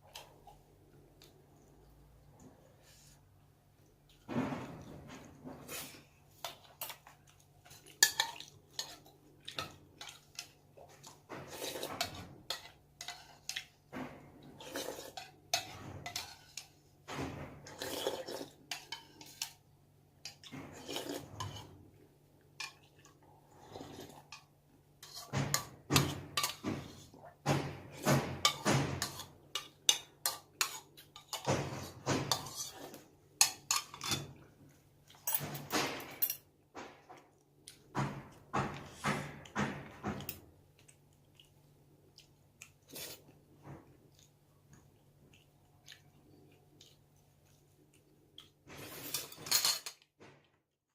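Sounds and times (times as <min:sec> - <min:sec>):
utensils clinking against bowls: 0:33.4 - 0:34.4, 0:49.0 - 0:50.0.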